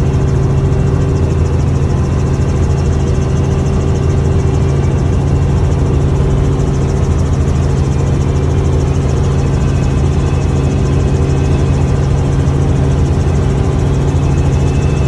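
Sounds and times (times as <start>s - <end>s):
loud engine drone: 0.0s - 15.0s.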